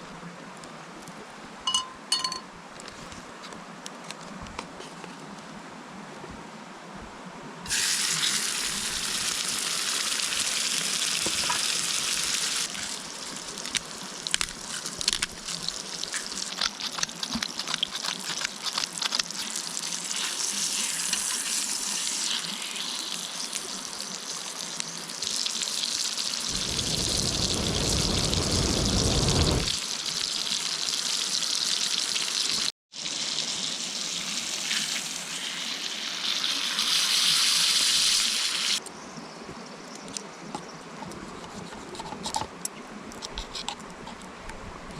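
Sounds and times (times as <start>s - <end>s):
food sizzling in a pan: 7.7s - 13.3s, 19.4s - 38.8s
low rumble: 26.5s - 29.8s.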